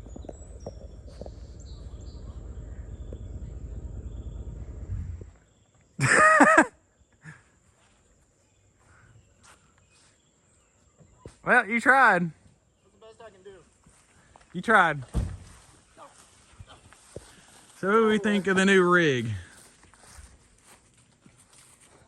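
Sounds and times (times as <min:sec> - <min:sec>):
truck engine rumbling: 0:00.0 - 0:05.4.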